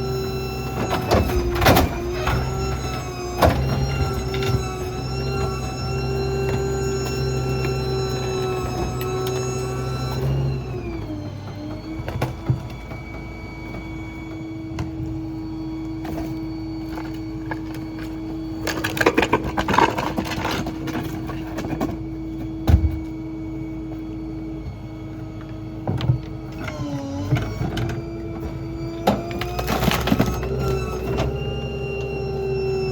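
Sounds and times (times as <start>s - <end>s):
garbage truck engine hum: 0.0s - 32.9s
crunching and clattering: 16.0s - 22.0s.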